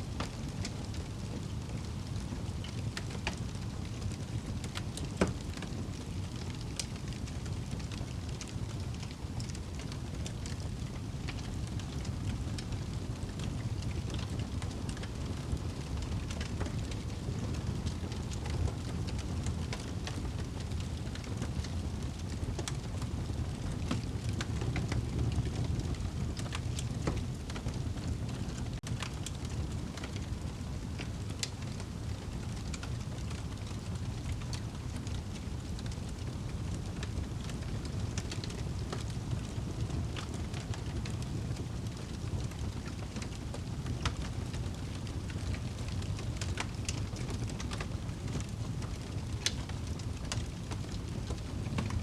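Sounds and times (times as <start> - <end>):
fire flames rumbling: 0.0 - 52.0
wood fire popping and snapping: 0.0 - 52.0.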